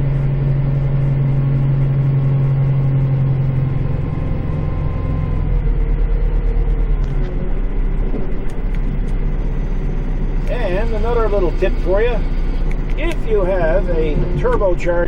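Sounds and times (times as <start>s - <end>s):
tractor diesel engine from cab: 0.0s - 15.0s.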